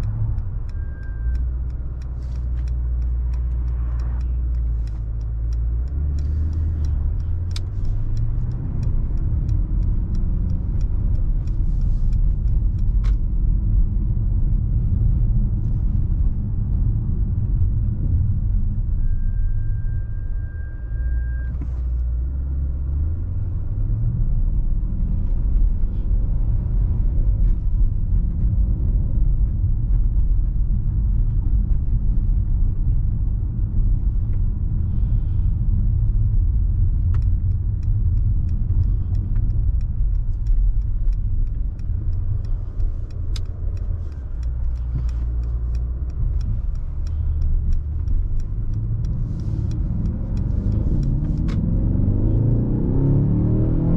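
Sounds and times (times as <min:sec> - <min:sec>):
car engine deep rumble: 0:00.0 - 0:53.9
light ticks: 0:00.0 - 0:53.9
brief steady tone: 0:00.7 - 0:01.6, 0:19.0 - 0:21.9.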